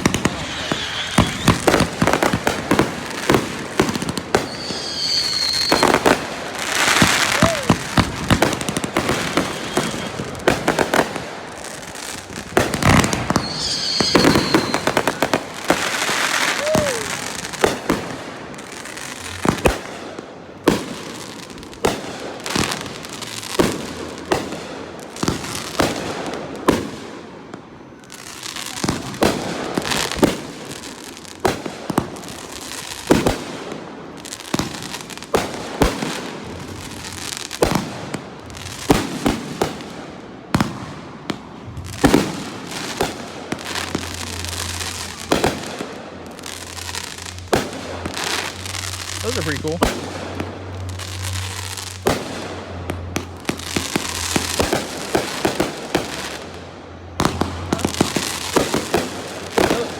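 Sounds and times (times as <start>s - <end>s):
firework shells bursting: 0.0s - 2.6s, 12.7s - 15.2s
fireworks crackling: 0.0s - 59.9s.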